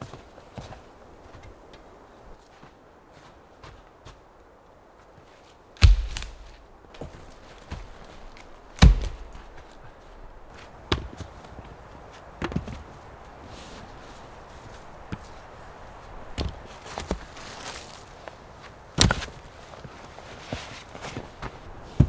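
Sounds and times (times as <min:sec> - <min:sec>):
wood being chopped: 0:05.8 - 0:11.2, 0:19.0 - 0:19.3.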